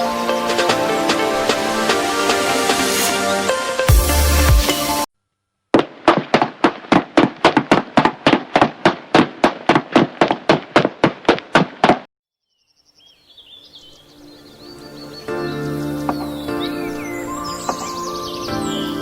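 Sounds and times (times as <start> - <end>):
sharp rapid knocks: 5.8 - 12.1
faint birdsong: 12.4 - 19.0.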